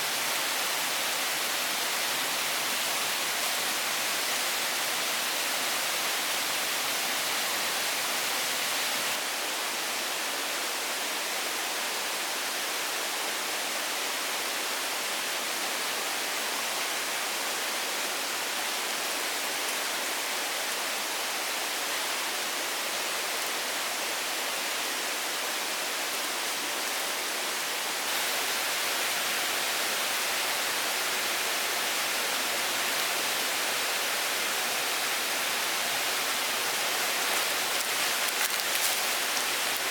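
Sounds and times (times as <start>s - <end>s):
steady rushing hiss: 28.0s - 39.9s.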